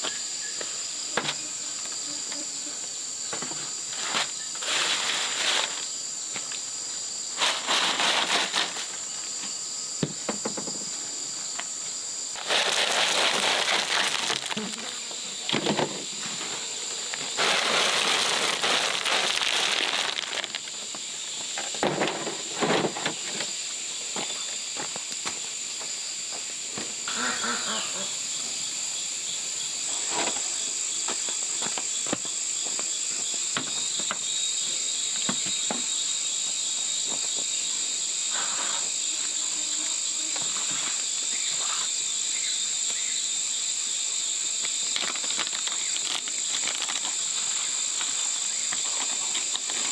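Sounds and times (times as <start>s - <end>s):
insects chirring: 0.0s - 49.9s
rustling burst: 12.4s - 14.9s, 17.3s - 20.7s.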